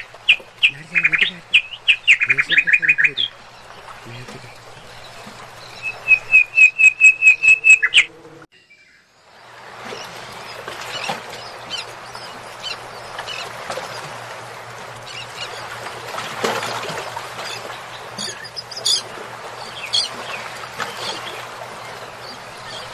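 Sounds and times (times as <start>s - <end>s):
steady background hiss: 0.0s - 8.4s
birds chirping: 0.0s - 22.9s.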